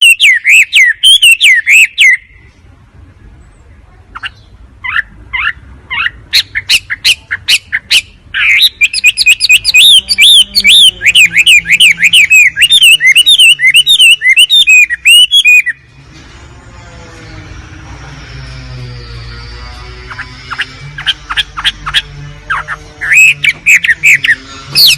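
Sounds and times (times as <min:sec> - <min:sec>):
bird sharp high chirps: 0:00.0 - 0:02.5, 0:04.1 - 0:15.9, 0:19.5 - 0:24.9.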